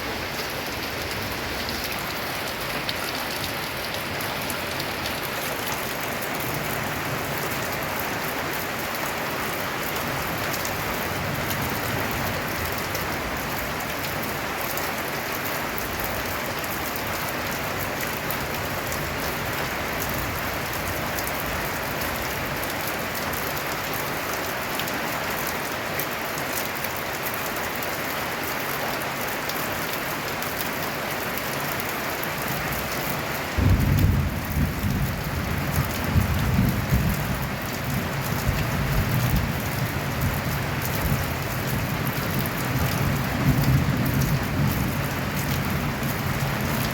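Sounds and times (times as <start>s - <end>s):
heavy rain on a tin roof: 0.0s - 46.9s
thunder rumble: 33.6s - 37.4s.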